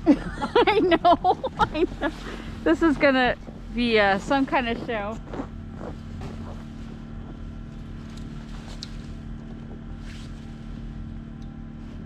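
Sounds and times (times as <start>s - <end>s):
engine humming steadily: 0.0s - 12.0s.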